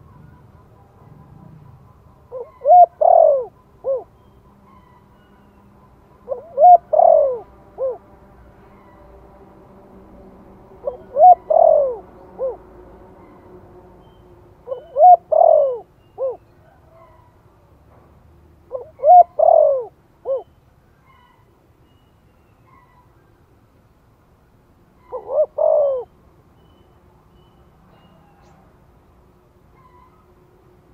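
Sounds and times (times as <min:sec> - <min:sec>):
dove cooing: 0:00.0 - 0:05.0, 0:06.2 - 0:08.1, 0:10.8 - 0:13.5, 0:14.6 - 0:17.3, 0:18.7 - 0:20.5, 0:25.0 - 0:26.2.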